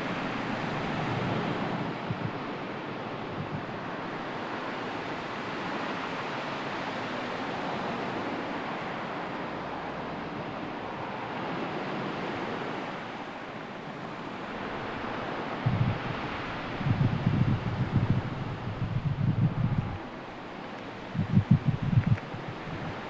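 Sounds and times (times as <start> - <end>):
sea waves washing on shore: 0.0 - 23.0.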